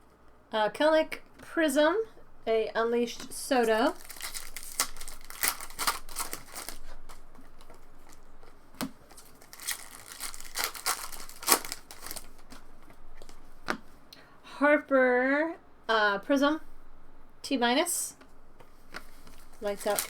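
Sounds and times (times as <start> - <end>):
wrappers crinkling and tearing: 3.5 - 8.3, 9.0 - 12.6, 19.2 - 20.0.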